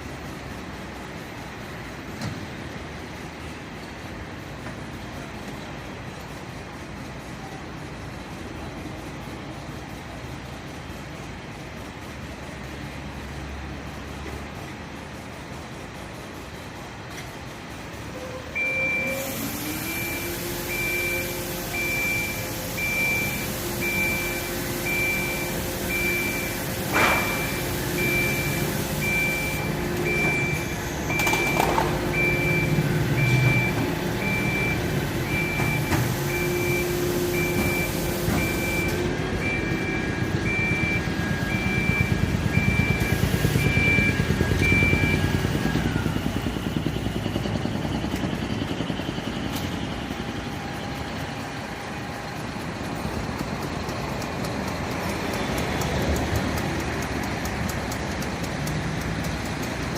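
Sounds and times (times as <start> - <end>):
truck engine running: 0.0 - 59.9
high warning beeps: 18.5 - 51.1
steady hum: 19.9 - 54.2.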